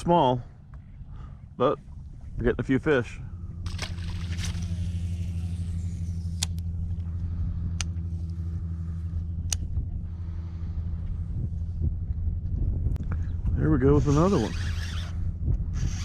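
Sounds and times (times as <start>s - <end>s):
boat motor humming: 3.1s - 12.5s, 13.2s - 16.0s.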